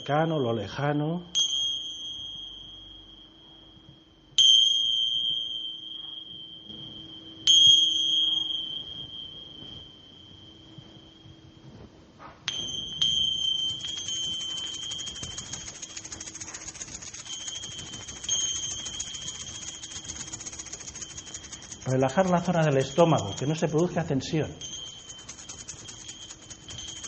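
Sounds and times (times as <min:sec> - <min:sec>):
small metal bell ringing: 0:01.4 - 0:03.8, 0:12.5 - 0:27.0
shimmering rattle: 0:12.5 - 0:27.0.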